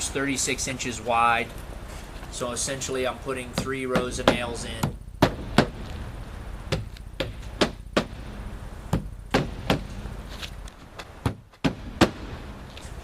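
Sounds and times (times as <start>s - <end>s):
hammer striking roofing nails: 3.6s - 5.8s, 6.7s - 8.2s, 8.9s - 10.0s, 11.2s - 12.3s.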